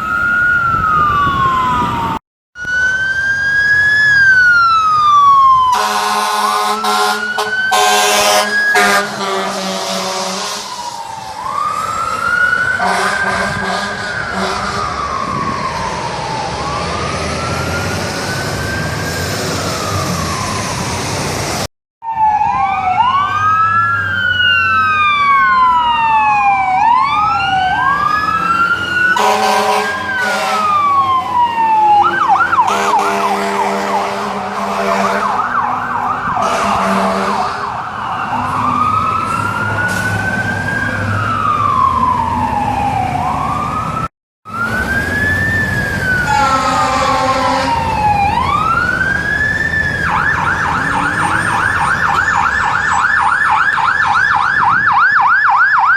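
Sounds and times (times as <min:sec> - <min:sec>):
emergency siren wailing: 0:00.0 - 0:55.9
horn blasts: 0:05.8 - 0:10.7, 0:12.8 - 0:14.9, 0:29.2 - 0:30.8, 0:32.6 - 0:35.4, 0:36.4 - 0:37.8, 0:46.3 - 0:47.9.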